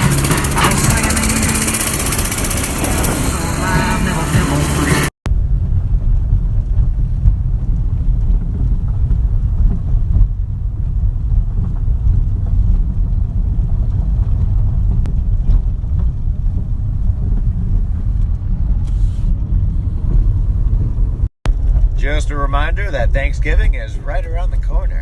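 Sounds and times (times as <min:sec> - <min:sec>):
loud low rumble: 0:00.0 - 0:25.0.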